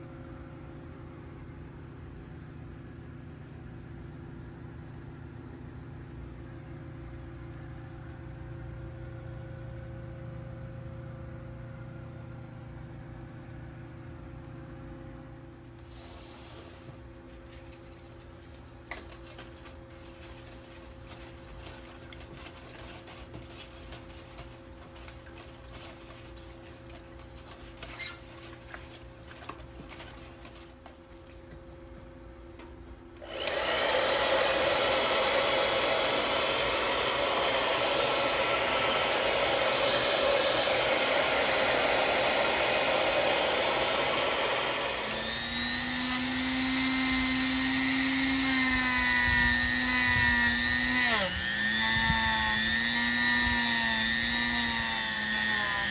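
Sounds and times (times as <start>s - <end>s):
power tool motor running: 33.2s - 55.9s.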